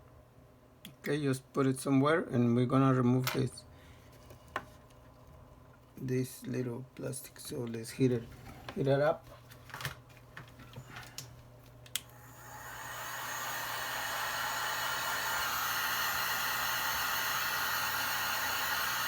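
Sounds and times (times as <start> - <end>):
heat gun fan whirring: 6.5 - 19.0.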